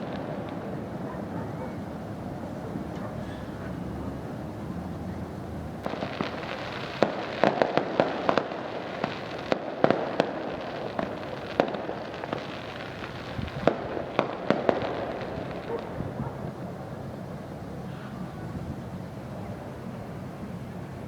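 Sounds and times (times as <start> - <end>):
fireworks crackling and banging: 0.0 - 3.8, 5.8 - 17.8.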